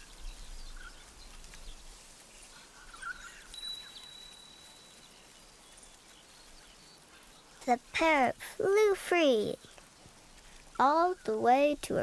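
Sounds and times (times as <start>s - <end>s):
soft bird chirps: 0.0s - 7.7s.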